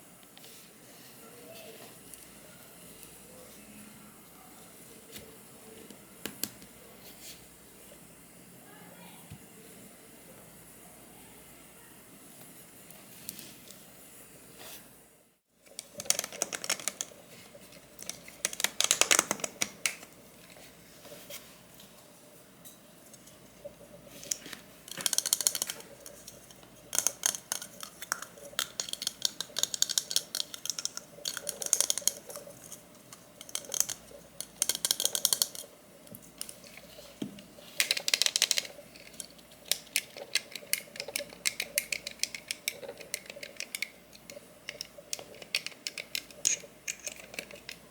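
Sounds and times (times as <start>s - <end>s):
small hard objects clicking: 15.7s - 17.1s, 18.0s - 20.1s, 24.2s - 35.7s, 37.8s - 47.9s.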